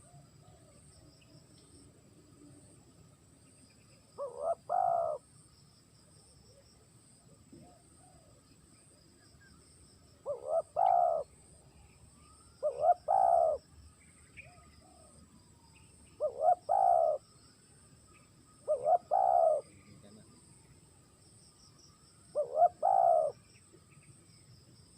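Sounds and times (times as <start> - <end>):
dove cooing: 4.2 - 5.2, 10.2 - 11.3, 12.6 - 13.6, 16.2 - 17.2, 18.6 - 20.0, 22.3 - 23.4.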